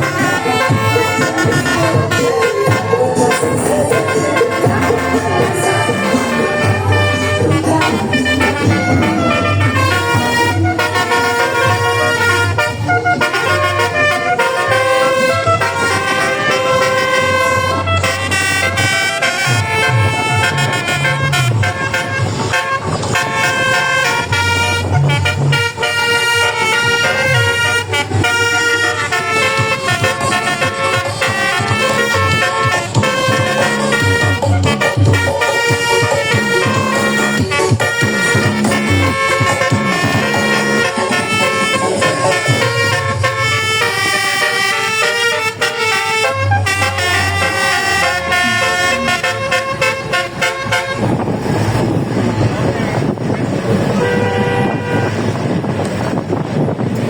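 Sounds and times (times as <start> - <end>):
multi-tone bus air horn tune: 0.0 - 57.0
deep bass note: 4.6 - 10.9.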